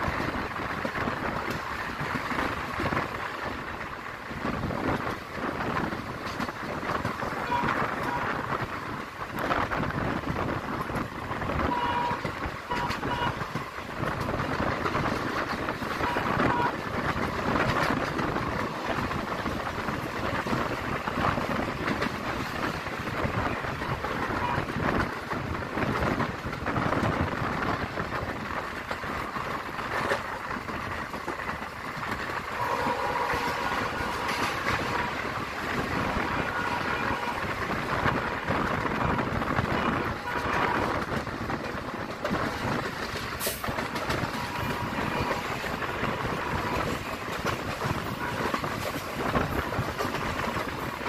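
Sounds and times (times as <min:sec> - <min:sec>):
train wheels rumbling on rails: 0:00.0 - 0:51.0
wind rushing past: 0:13.4 - 0:51.0.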